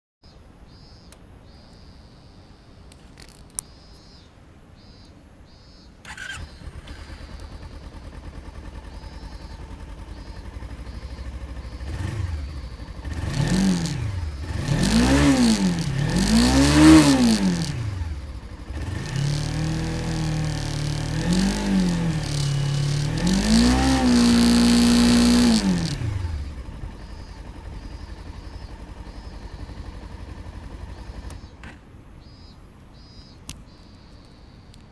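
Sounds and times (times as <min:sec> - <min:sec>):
motorcycle engine revving: 0:06.0 - 0:33.1.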